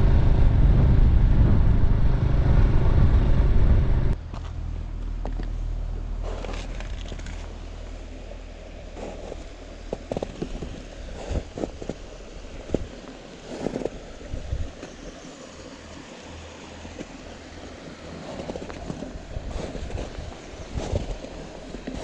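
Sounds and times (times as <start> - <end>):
wind noise: 0.0 - 4.4, 9.2 - 14.9, 18.3 - 22.0
low steady hum: 0.0 - 22.0.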